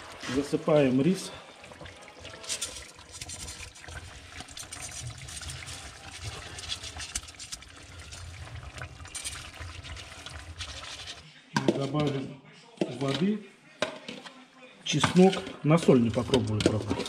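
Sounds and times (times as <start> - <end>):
rice pouring into a pot: 0.0 - 11.2.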